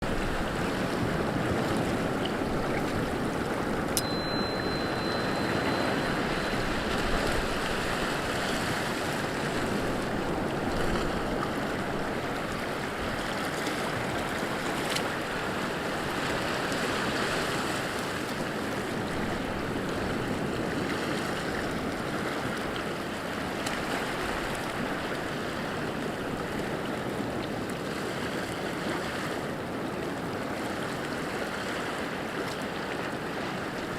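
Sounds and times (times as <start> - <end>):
water rushing: 0.0 - 33.9
faint high tone: 4.0 - 8.6.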